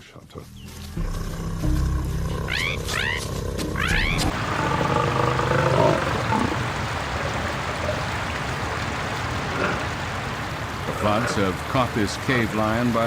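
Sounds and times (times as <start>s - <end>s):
big cat growling low: 1.0s - 6.7s
chirping animal calls: 2.3s - 6.6s
heavy rain: 3.8s - 13.0s
rushing water: 3.8s - 13.0s.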